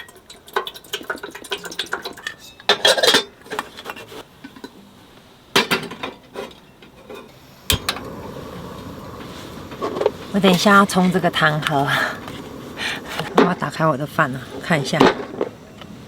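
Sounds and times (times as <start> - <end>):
metal cookware clinking: 0.0 - 4.8, 5.6 - 7.9
gas stove hissing: 0.1 - 16.0.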